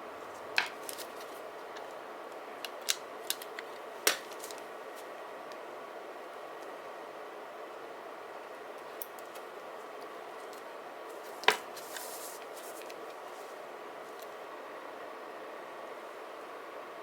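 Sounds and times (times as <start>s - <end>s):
paper rustling: 0.3s - 1.4s, 10.4s - 13.6s.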